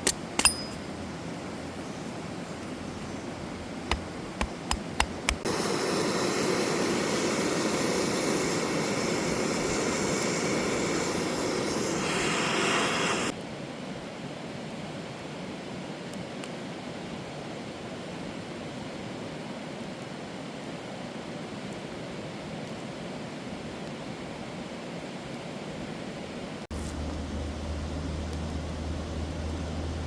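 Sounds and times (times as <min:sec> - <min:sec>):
steady rushing hiss: 0:01.0 - 0:13.4, 0:26.6 - 0:30.0
sharp clicks: 0:03.9 - 0:05.5.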